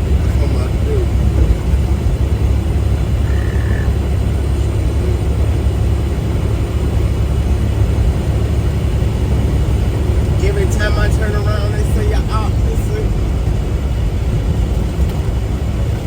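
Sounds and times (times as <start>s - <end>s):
truck engine and road noise: 0.0s - 16.0s.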